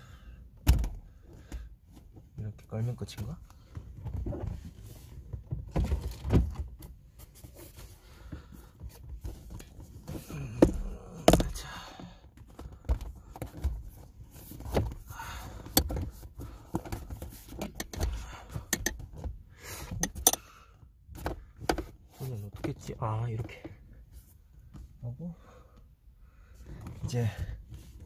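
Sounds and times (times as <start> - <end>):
knocks and thumps of gear: 0.6 - 7.5, 8.3 - 20.4, 21.1 - 23.9.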